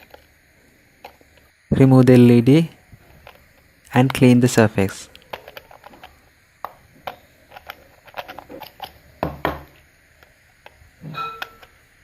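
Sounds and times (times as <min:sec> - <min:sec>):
tool clicking and scratching: 0:07.1 - 0:09.0.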